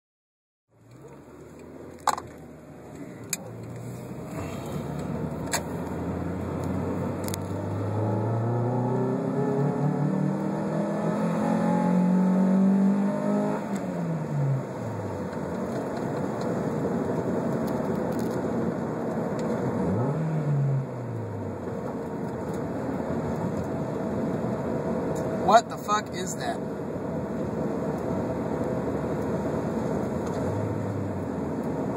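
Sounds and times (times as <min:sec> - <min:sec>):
car engine revving hard: 0:03.8 - 0:15.2, 0:19.7 - 0:21.4.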